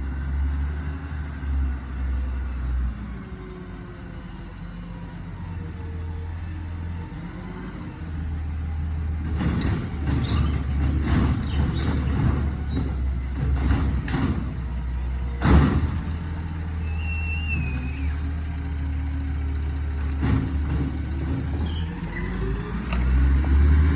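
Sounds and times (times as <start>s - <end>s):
garbage truck engine running: 2.4s - 23.9s
brief squeal: 16.8s - 18.3s.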